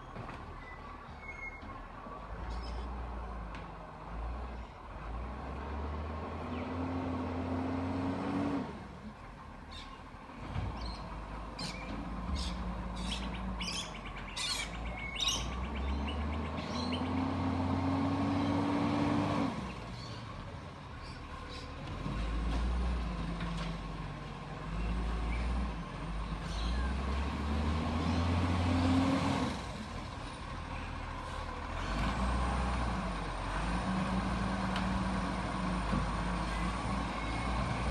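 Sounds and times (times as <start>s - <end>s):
diesel engine revving: 4.0s - 9.0s, 10.3s - 37.9s
birds chirping: 10.8s - 17.5s.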